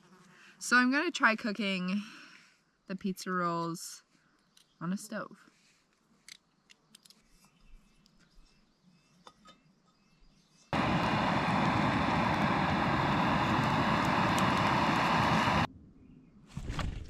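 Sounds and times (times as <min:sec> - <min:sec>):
camp stove and pan clicks: 0:10.8 - 0:15.7
gas stove flame hissing: 0:10.8 - 0:15.7.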